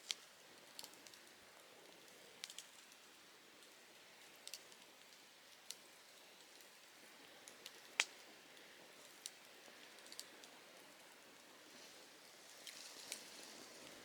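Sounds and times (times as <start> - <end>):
campfire crackling and popping: 0.0 - 14.0
faint fire hiss: 0.0 - 14.0.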